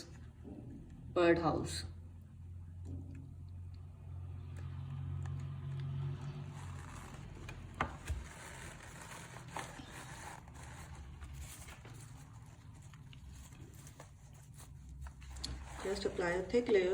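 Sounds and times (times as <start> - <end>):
soft scraping and rustling: 6.1 - 16.9.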